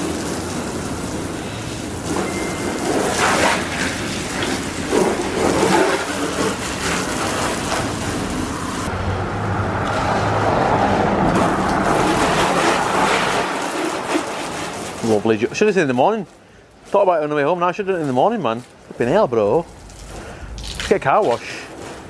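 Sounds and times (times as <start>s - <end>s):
garden hose spraying water: 0.0s - 8.9s, 9.8s - 16.2s.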